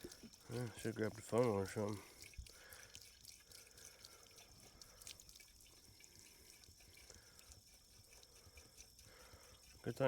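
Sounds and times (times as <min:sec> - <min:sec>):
water dripping and trickling: 0:00.0 - 0:10.0
water pouring into pump casing: 0:00.0 - 0:10.0.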